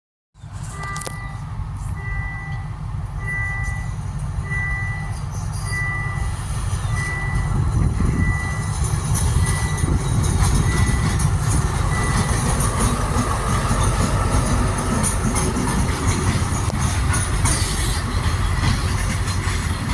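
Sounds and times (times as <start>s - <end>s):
train rumble: 0.4s - 19.9s
warning signal beeping: 0.7s - 6.3s, 6.9s - 8.8s, 9.4s - 14.5s.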